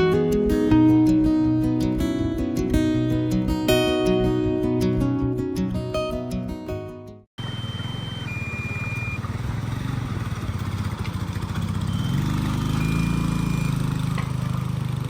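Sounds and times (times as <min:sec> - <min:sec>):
motorcycle engine running: 0:07.4 - 0:15.0.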